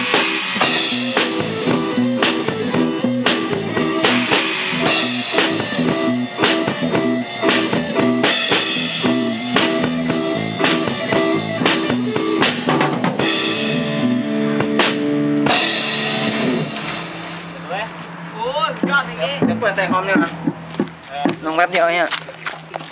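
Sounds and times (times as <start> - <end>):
drum kit beat: 0.0 - 17.7, 18.7 - 21.6
bass line: 0.0 - 21.6
cymbal crash: 14.9 - 17.6.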